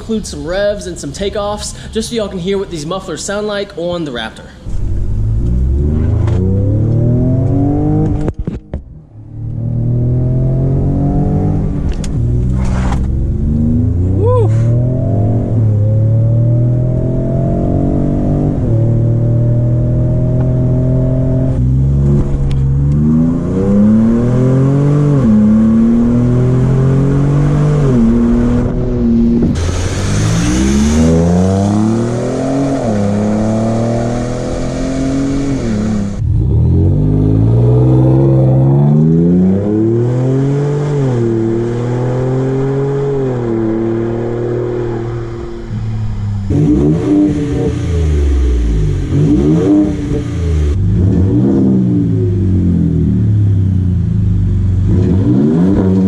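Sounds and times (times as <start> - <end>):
truck engine revving and pulling away: 4.6 - 8.4, 9.0 - 56.0.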